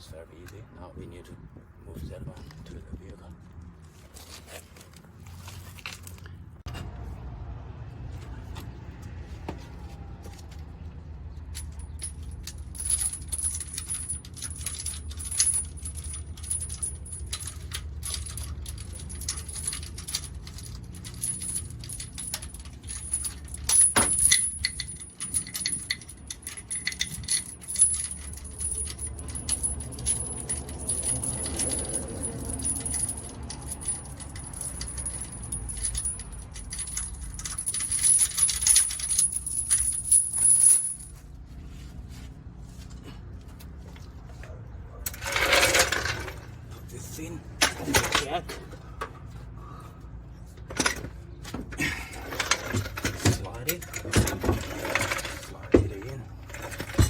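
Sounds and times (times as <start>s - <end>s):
metallic clinks of tools: 11.6s - 41.2s.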